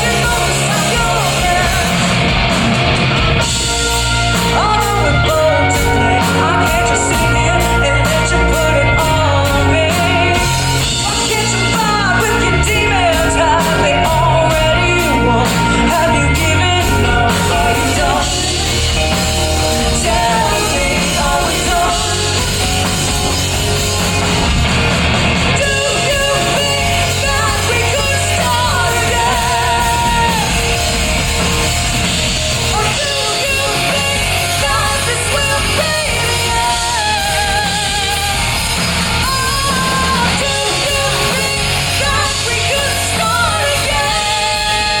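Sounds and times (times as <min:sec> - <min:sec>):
rock band playing: 0:00.0 - 0:45.0
person shouting singing: 0:25.5 - 0:31.0.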